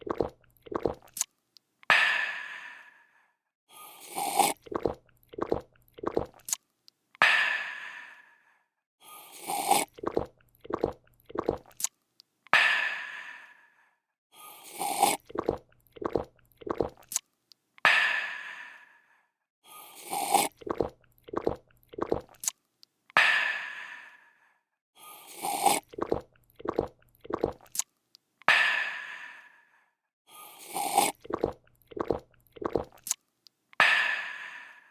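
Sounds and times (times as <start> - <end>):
person gulping: 0.0 - 1.2, 4.1 - 6.6, 9.5 - 11.9, 14.8 - 17.2, 20.1 - 22.5, 25.4 - 27.8, 30.6 - 33.2
person slurping: 0.0 - 1.2, 3.8 - 6.6, 9.2 - 11.9, 14.4 - 17.2, 19.7 - 22.6, 25.0 - 27.8, 30.4 - 33.2.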